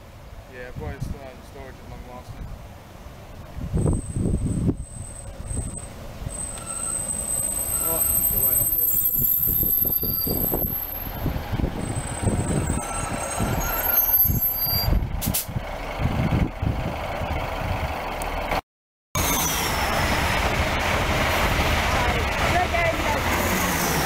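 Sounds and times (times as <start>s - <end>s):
diesel engine: 0.0s - 18.6s, 19.2s - 24.0s
high squeal tones: 3.8s - 11.2s, 11.8s - 15.0s, 19.2s - 20.3s
express train rushing past: 19.2s - 24.0s.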